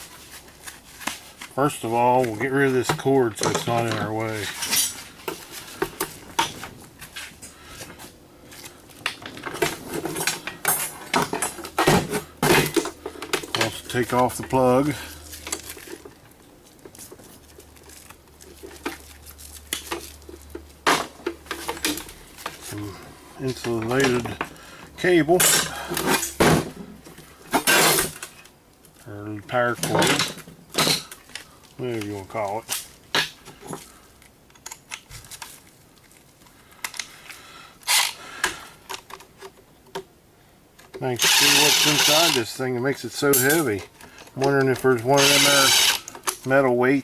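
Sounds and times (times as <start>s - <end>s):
tools and metal parts clicking: 41.2s - 42.4s, 43.3s - 43.8s
metal parts clicking and clacking: 43.2s - 46.5s.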